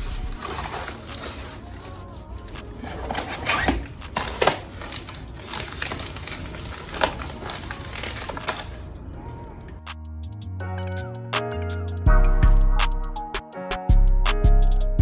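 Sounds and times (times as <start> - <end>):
packaging crinkling and rustling: 0.0 - 9.0.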